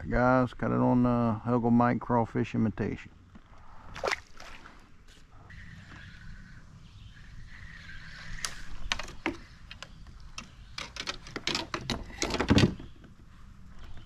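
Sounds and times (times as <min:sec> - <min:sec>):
gear knocking and clattering in kayak: 0:08.8 - 0:13.2.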